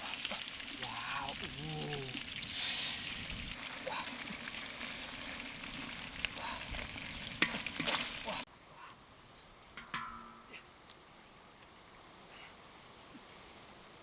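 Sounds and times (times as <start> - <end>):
fish sizzling in a pan: 0.0 - 8.5.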